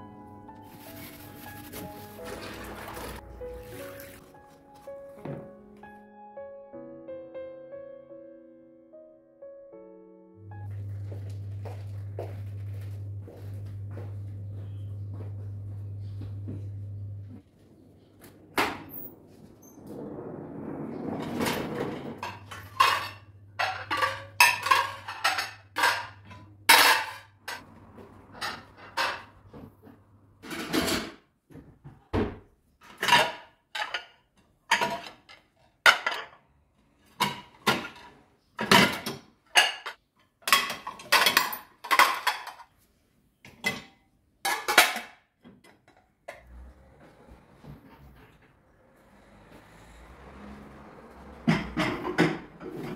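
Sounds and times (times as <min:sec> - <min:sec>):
faint low hum: 0:10.4 - 0:24.2
dishes and cutlery clinking: 0:22.2 - 0:27.6, 0:32.8 - 0:36.4, 0:37.2 - 0:42.8, 0:51.5 - 0:52.9.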